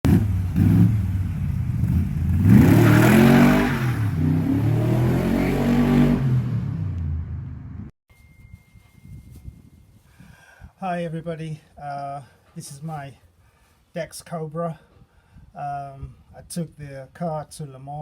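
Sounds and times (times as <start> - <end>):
car engine revving: 0.0 - 7.9.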